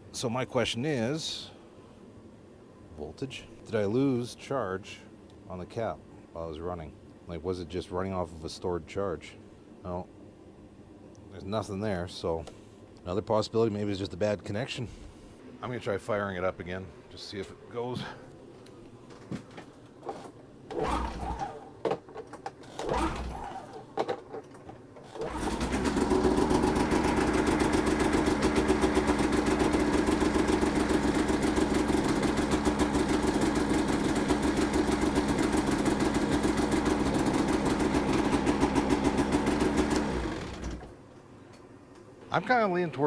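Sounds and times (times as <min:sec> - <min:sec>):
snowmobile engine cranking: 0:20.1 - 0:21.7, 0:22.6 - 0:23.8, 0:25.1 - 0:40.9.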